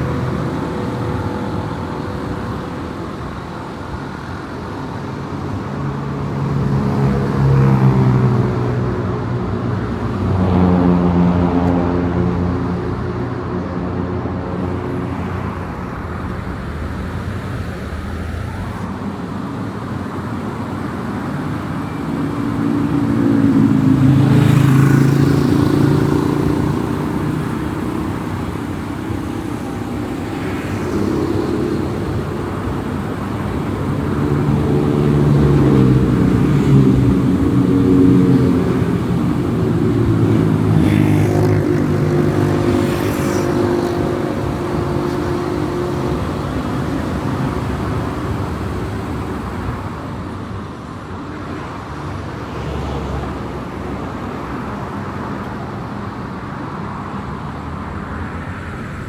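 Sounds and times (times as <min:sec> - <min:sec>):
tyre and road noise: 0:00.0 - 0:59.0
car engine accelerating: 0:09.9 - 0:50.3.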